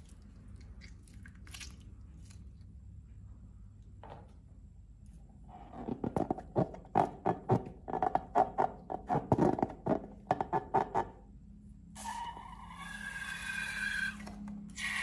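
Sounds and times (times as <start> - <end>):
slime squelching by hand: 0.0 - 2.8.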